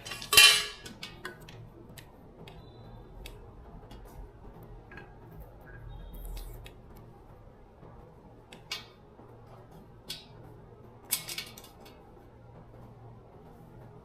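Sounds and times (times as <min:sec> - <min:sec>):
tools clicking and scraping: 0:11.1 - 0:12.0.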